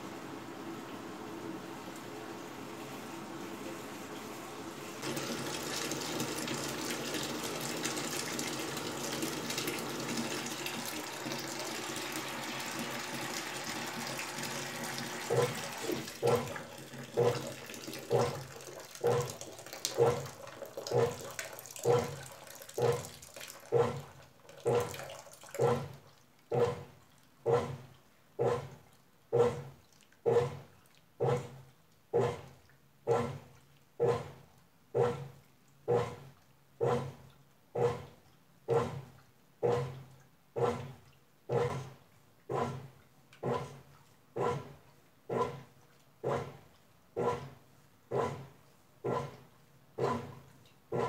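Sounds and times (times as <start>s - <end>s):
washing machine water sloshing: 1.8s - 28.0s
water pouring into tub: 5.0s - 26.2s.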